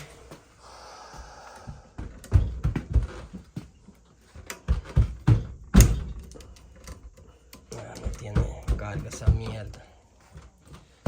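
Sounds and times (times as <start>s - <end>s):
sharp knocks and clicks: 4.4s - 9.9s.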